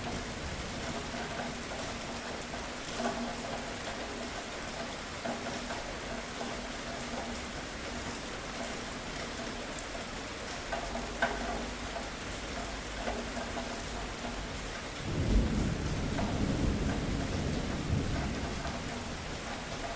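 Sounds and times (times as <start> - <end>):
steady rain falling: 0.0 - 19.9
thunder rumbling: 15.0 - 19.9.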